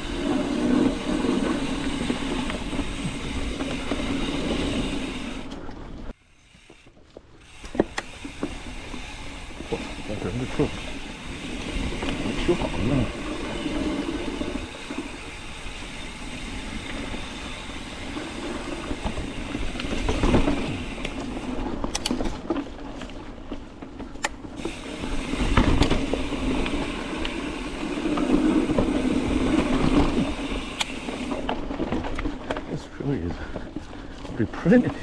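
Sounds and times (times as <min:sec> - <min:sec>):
bike tyre and drivetrain noise: 0:00.0 - 0:35.0
bike clicks and knocks: 0:06.6 - 0:15.7, 0:16.4 - 0:32.8.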